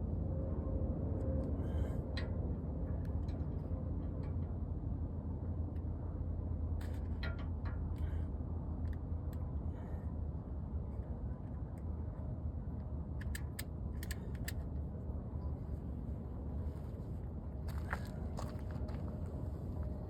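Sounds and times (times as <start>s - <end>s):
low mechanical drone: 0.0s - 20.0s
light clicks and rattles: 12.8s - 15.5s.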